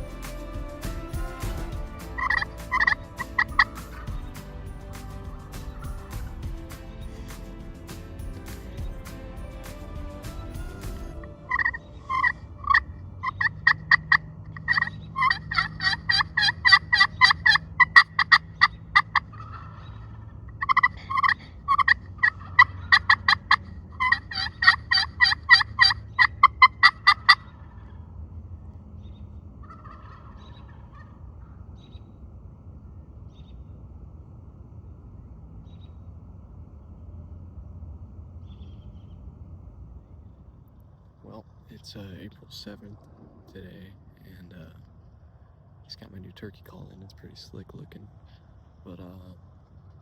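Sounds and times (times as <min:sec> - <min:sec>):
wild turkeys calling: 0:02.2 - 0:04.3, 0:11.5 - 0:27.9, 0:29.0 - 0:32.0.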